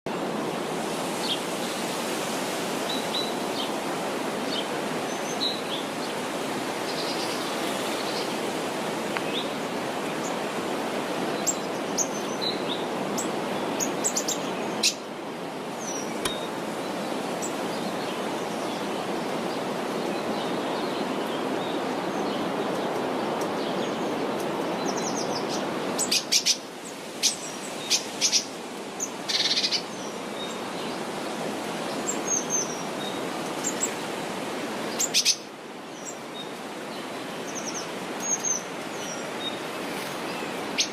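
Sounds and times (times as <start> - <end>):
small birds chirping: 11.3 - 15.0.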